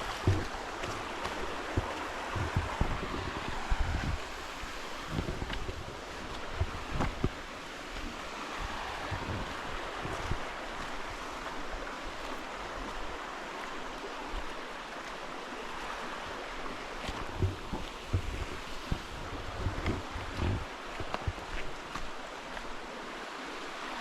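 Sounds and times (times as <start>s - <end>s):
wind bumps on microphone: 0.0s - 12.6s, 17.1s - 21.9s
creek water running over rocks: 0.0s - 24.0s.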